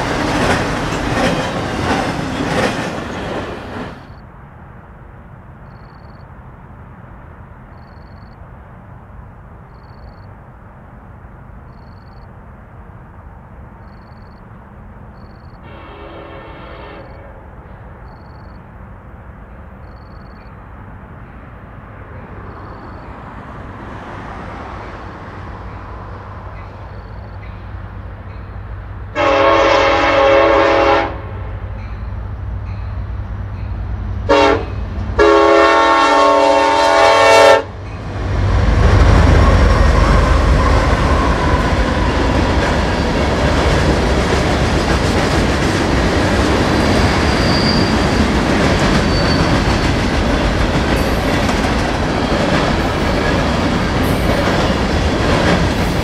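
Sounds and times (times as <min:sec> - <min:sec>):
diesel locomotive engine rumble: 0:00.0 - 0:56.0
train horn: 0:15.6 - 0:17.5, 0:29.1 - 0:32.0, 0:34.3 - 0:37.7.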